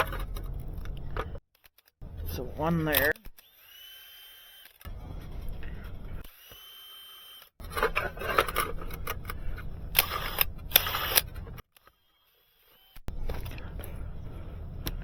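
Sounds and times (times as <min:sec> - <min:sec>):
power drill drilling: 0:03.0 - 0:04.9, 0:06.2 - 0:07.6, 0:09.9 - 0:13.1.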